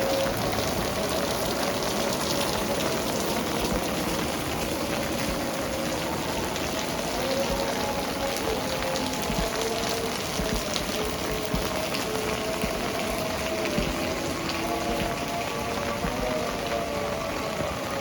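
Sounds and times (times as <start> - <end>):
heavy rain on hard surfaces: 0.0 - 18.0.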